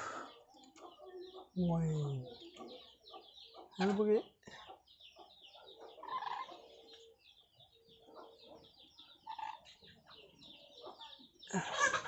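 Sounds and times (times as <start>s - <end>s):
parrots chattering: 5.9s - 6.8s, 8.2s - 9.9s.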